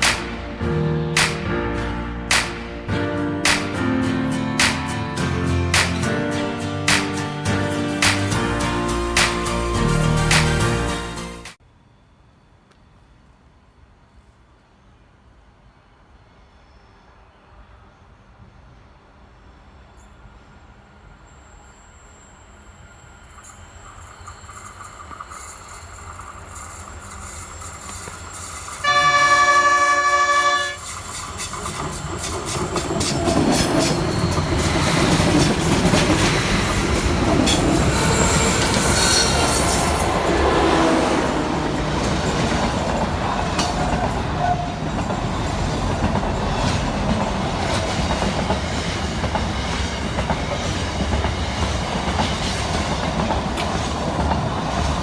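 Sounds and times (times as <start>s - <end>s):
train rumble and wheel clatter: 0.0s - 10.9s, 14.3s - 55.0s
train horn: 28.8s - 30.9s, 32.8s - 45.1s.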